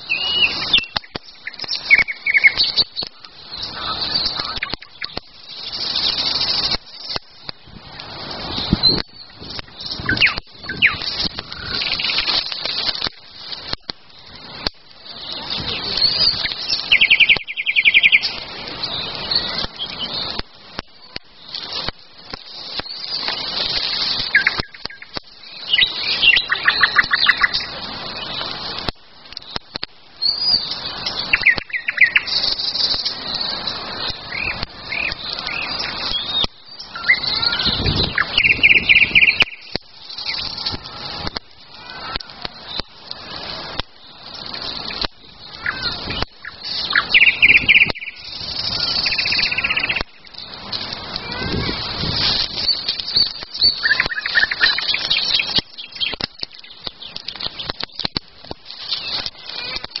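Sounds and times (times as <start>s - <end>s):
campfire popping: 0.0s - 60.0s
songbirds singing and chirping: 0.0s - 60.0s
fast bird trill: 8.8s - 13.0s, 15.3s - 20.3s, 22.7s - 28.3s, 30.2s - 40.7s, 44.6s - 50.6s, 51.2s - 57.8s.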